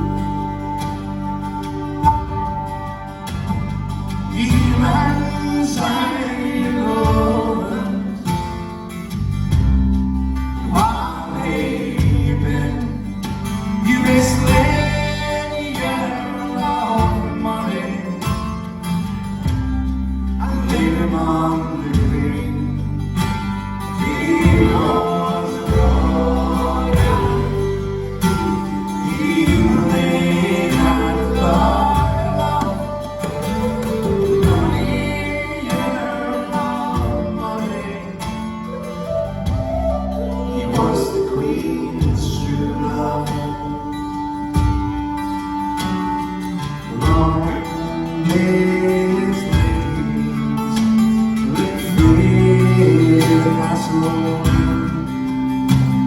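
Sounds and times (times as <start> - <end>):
person singing: 0.0 - 8.7, 10.6 - 18.6, 23.9 - 44.8
acoustic guitar: 0.0 - 56.0.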